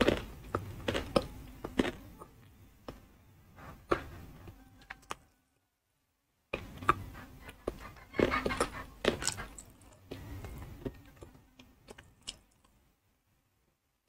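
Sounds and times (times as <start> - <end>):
brittle crunching and chewing: 0.0 - 2.1, 8.2 - 10.2, 11.0 - 12.8.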